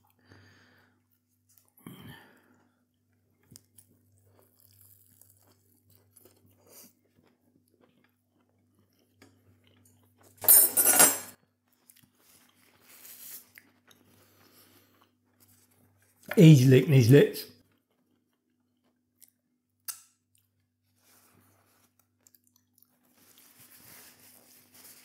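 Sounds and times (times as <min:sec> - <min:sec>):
person chewing with mouth closed: 0:01.4 - 0:10.3, 0:11.5 - 0:16.4, 0:17.6 - 0:24.6
paper napkin rustling: 0:23.4 - 0:25.0.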